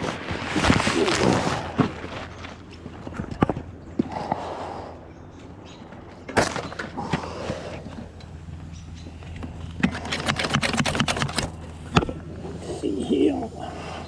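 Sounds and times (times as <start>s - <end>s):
rustling: 0.0s - 3.7s.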